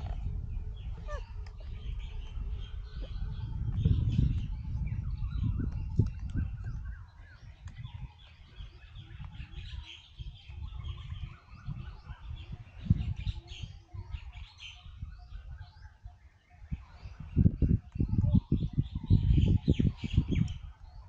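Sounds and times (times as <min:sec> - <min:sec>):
low rumble: 0:00.0 - 0:09.6
small birds chirping and twittering: 0:00.0 - 0:21.0.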